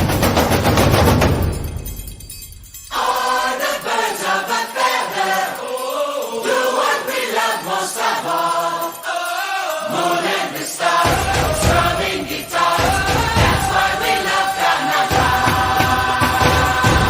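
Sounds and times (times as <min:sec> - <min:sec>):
loud percussive music: 0:00.0 - 0:02.9, 0:11.0 - 0:17.0
group of voices singing: 0:02.9 - 0:17.0.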